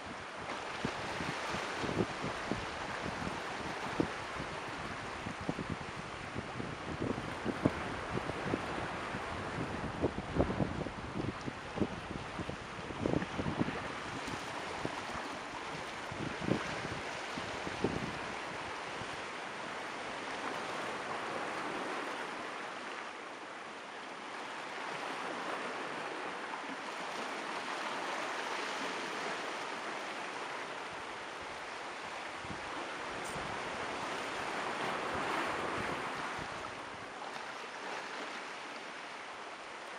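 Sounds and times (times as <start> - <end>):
ocean surf rushing: 24.5 - 37.2.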